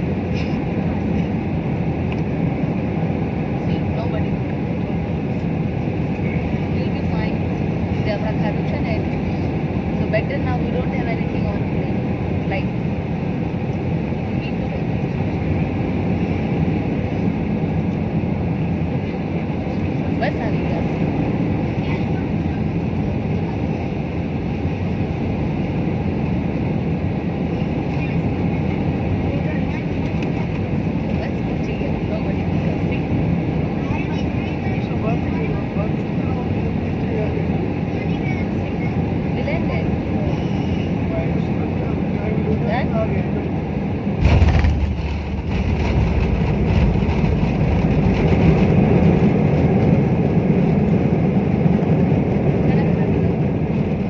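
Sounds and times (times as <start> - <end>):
airliner cabin engine rumble: 0.0 - 54.0.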